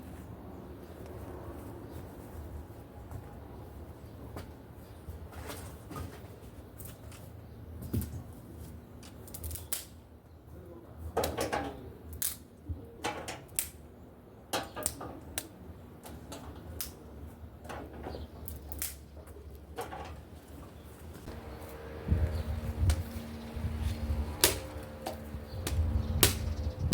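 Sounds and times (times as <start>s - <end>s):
firewood snapping and crackling: 9.0s - 10.0s, 12.1s - 12.5s, 13.4s - 13.8s, 14.6s - 15.6s, 16.6s - 17.0s, 18.4s - 19.7s, 24.3s - 26.5s
low steady rumble: 21.2s - 26.9s.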